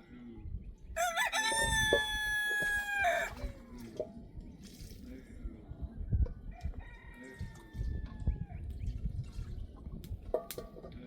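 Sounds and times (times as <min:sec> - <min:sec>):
rooster crowing: 0:01.0 - 0:03.4.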